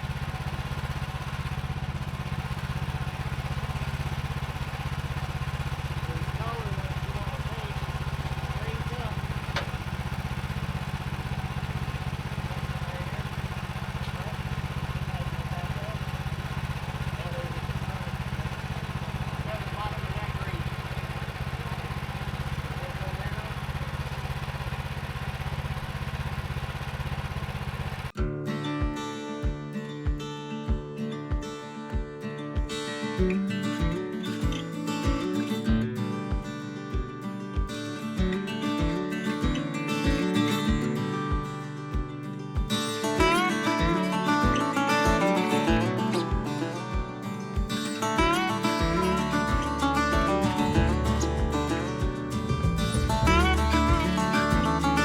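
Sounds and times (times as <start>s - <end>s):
small gasoline engine putter: 0.0s - 28.2s
strummed acoustic guitar music: 0.0s - 55.0s.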